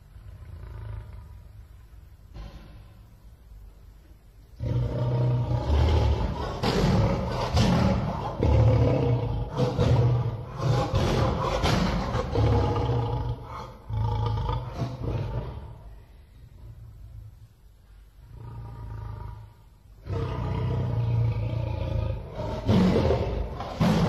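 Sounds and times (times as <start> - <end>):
lion roaring: 4.6 - 15.9, 18.3 - 24.0.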